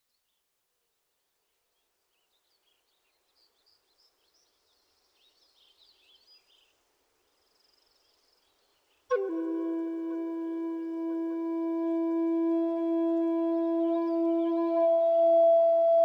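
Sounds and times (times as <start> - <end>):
faint birds chirping: 0.0 - 10.1.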